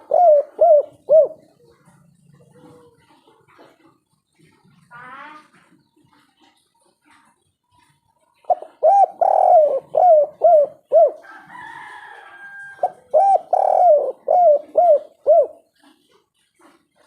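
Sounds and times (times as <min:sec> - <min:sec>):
dove cooing: 0:00.0 - 0:03.8, 0:07.8 - 0:17.0.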